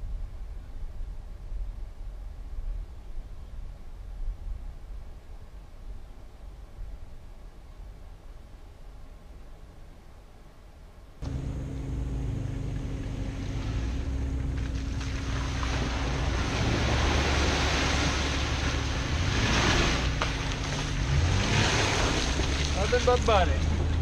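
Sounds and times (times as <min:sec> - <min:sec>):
off-road vehicle engine running: 0:11.2 - 0:24.0
water rushing and splashing: 0:12.6 - 0:24.0.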